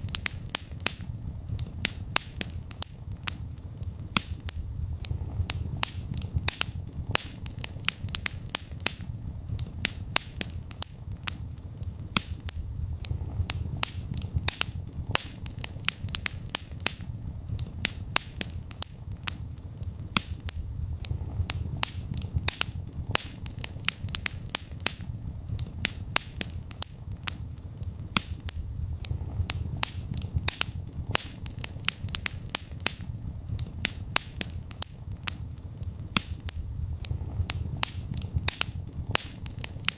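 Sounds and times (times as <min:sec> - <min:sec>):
low rumble of flames: 0:00.0 - 0:39.9
wood fire pops and snaps: 0:00.0 - 0:39.9.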